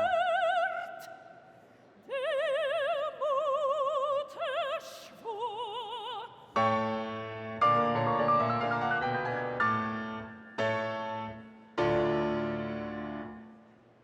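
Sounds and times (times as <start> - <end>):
operatic singing with vibrato: 0.0 - 6.9.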